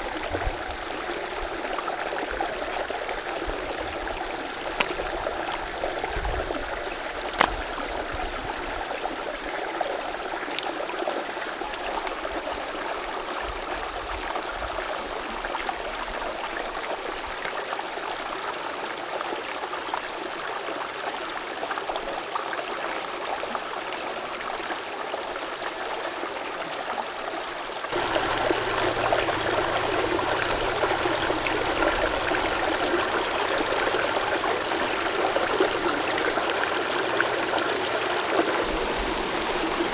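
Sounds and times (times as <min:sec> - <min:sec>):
mountain stream rushing: 0:00.0 - 0:08.1, 0:27.9 - 0:39.9.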